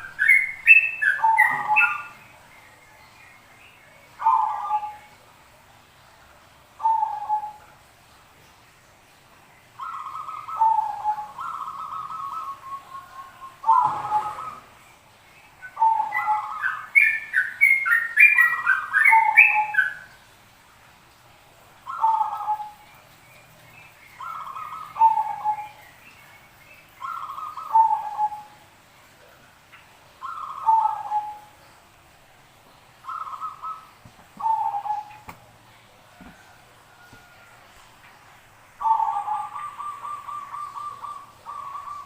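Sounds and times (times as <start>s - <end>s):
doves cooing: 0.0s - 2.2s, 4.2s - 5.1s, 9.8s - 14.8s, 15.6s - 20.0s, 21.9s - 22.9s, 24.2s - 25.8s, 27.0s - 28.6s, 30.2s - 31.6s, 33.0s - 37.7s, 38.8s - 42.0s.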